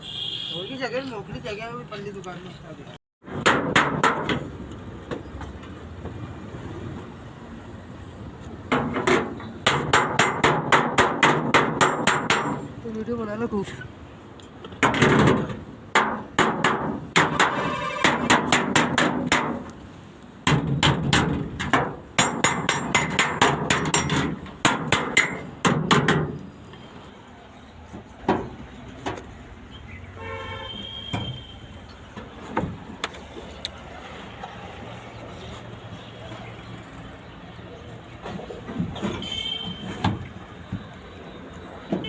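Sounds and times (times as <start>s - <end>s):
hammer striking sheet metal: 3.2s - 4.4s, 8.7s - 12.7s, 14.8s - 19.7s, 20.4s - 26.4s.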